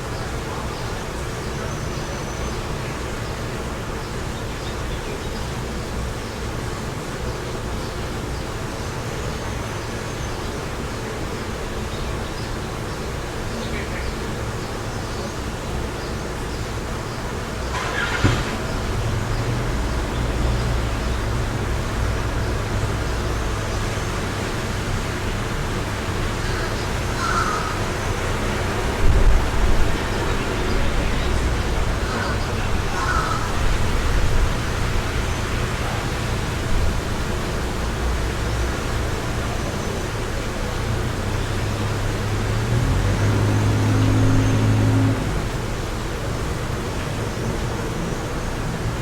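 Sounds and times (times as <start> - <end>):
wind blowing: 27.8 - 49.0
wind buffeting microphone: 28.2 - 49.0.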